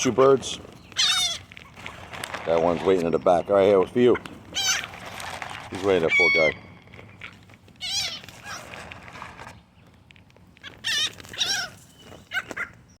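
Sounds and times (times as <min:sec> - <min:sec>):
birds high wavering cries: 0:00.0 - 0:13.0.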